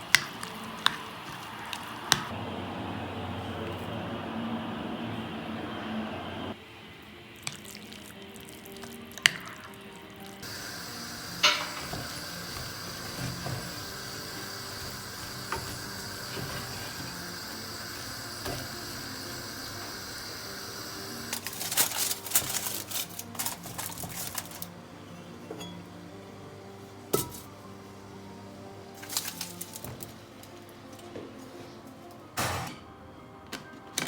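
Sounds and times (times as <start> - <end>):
food sizzling in a pan: 7.1 - 24.8
pan and utensils clattering: 10.4 - 26.0, 27.1 - 27.6.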